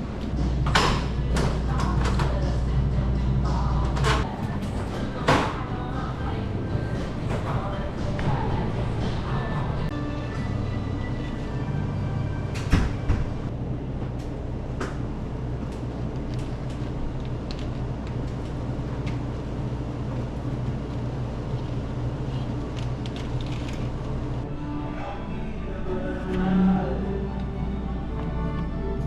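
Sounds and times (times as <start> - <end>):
low hum of equipment: 0.0 - 29.0.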